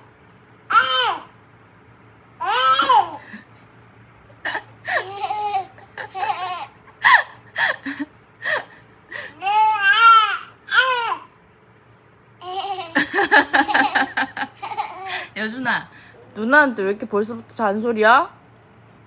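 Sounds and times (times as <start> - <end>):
baby babbling and squealing: 0.7 - 1.3, 2.4 - 3.2, 9.4 - 11.3
baby wavering cry: 0.7 - 1.3, 2.4 - 3.3, 9.4 - 11.3.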